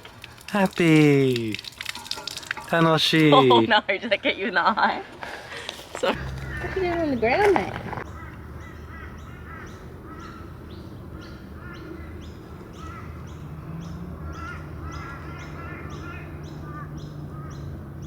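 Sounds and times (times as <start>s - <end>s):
bird high falling call: 6.1s - 10.4s
soft lower bird chirps: 6.1s - 18.0s.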